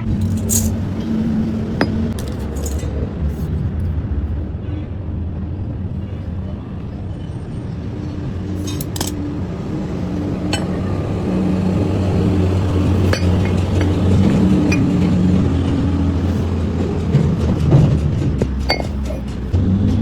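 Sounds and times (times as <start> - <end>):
metallic clinks of parts: 0.0 - 3.5, 8.6 - 9.3, 11.8 - 17.7, 18.4 - 19.5.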